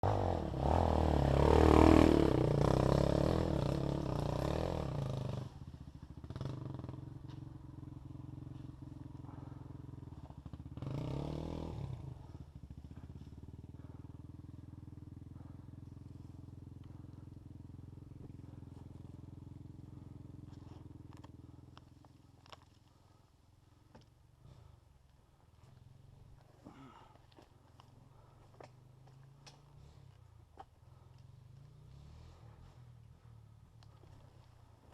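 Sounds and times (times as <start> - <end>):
off-road vehicle engine revving: 0.0 - 5.6, 6.2 - 12.4, 14.6 - 21.6, 30.9 - 34.9.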